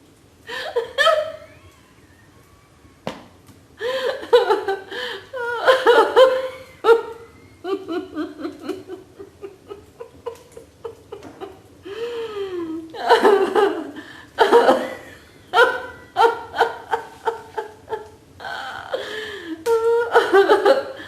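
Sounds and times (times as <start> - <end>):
people laughing ha-ha-ha: 3.8 - 11.7, 12.8 - 18.2.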